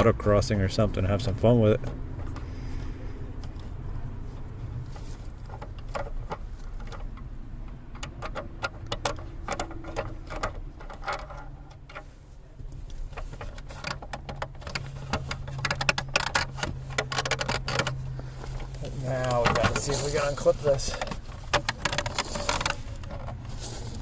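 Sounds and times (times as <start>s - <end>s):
hand tools clicking and rattling: 1.2s - 24.0s.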